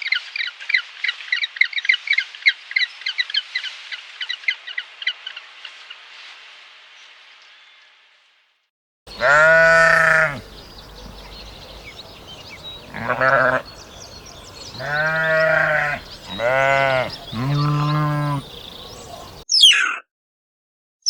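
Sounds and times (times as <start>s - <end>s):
farm animal bleating: 9.1s - 19.4s
faint high bird chirps: 9.1s - 20.0s.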